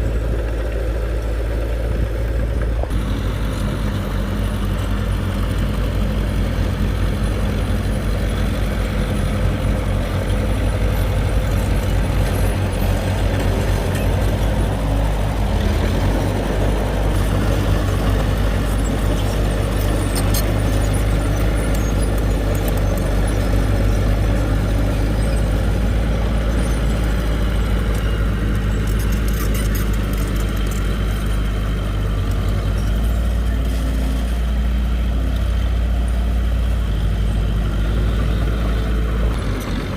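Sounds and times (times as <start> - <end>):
heavy diesel engine droning: 0.0 - 39.9.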